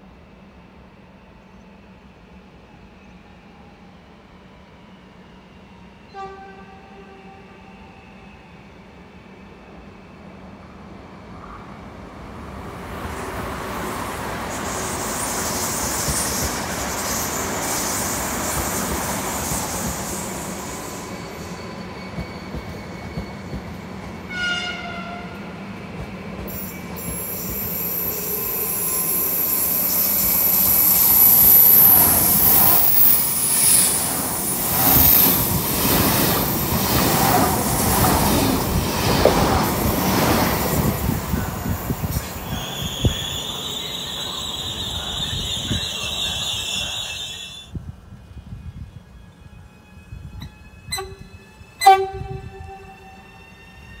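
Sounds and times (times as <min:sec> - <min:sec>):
commuter train rolling by: 0:00.0 - 0:54.0
high-speed train whine and wheels: 0:00.0 - 0:54.0
train horn: 0:06.1 - 0:08.0, 0:24.3 - 0:25.4, 0:50.9 - 0:53.7.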